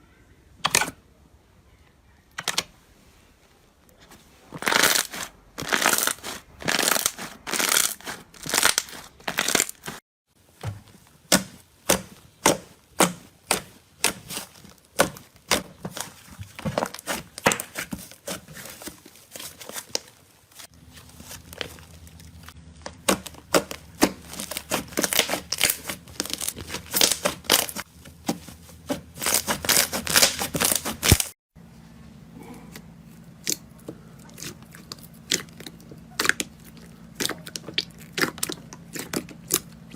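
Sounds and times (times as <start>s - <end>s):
slime squeezed crackling and popping: 4.6s - 9.9s, 21.4s - 27.8s, 33.3s - 39.9s.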